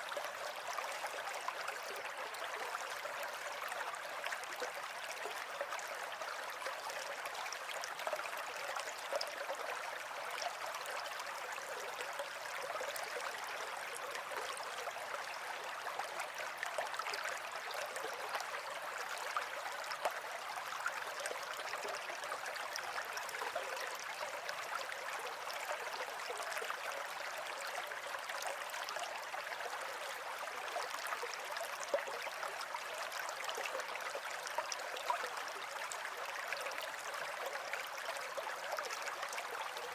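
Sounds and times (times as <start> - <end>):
running water babbling: 0.0 - 39.9.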